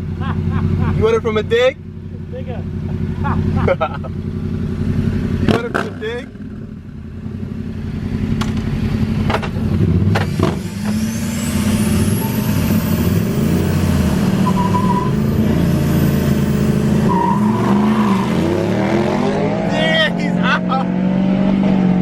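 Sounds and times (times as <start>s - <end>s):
pickup truck engine: 0.0s - 22.0s.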